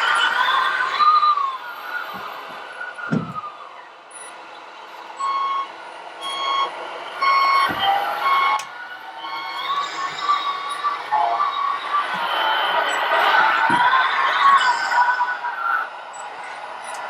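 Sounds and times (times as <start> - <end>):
reversing warning beeps: 5.2 - 13.6.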